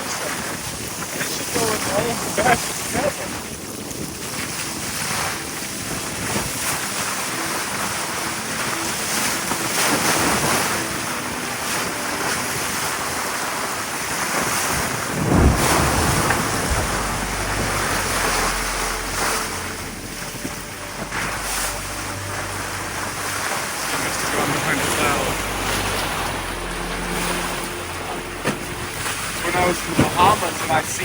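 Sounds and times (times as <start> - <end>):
waves washing: 0.0 - 31.0
wind buffeting microphone: 0.0 - 31.0
low rumble: 15.0 - 30.9.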